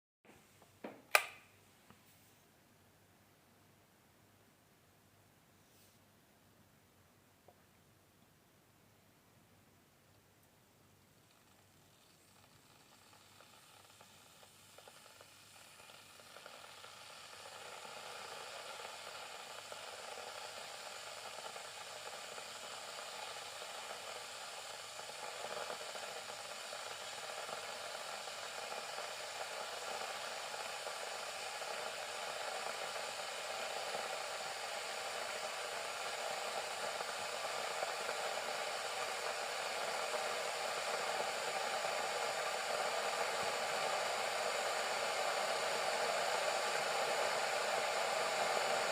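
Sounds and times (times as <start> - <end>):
kettle heating water: 10.2 - 48.9.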